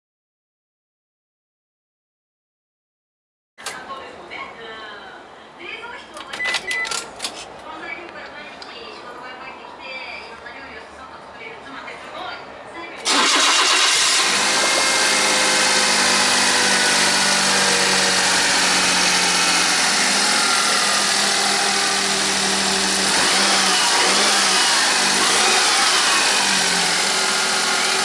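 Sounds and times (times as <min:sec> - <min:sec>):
small engine idling: 0:13.1 - 0:28.0.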